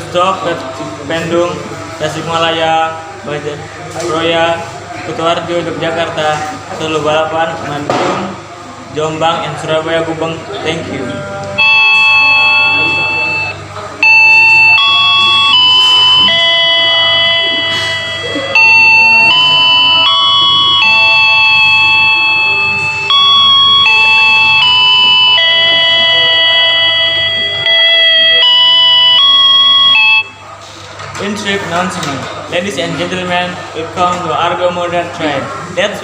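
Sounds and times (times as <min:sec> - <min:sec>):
electronic chime melody: 0:11.6 - 0:30.4.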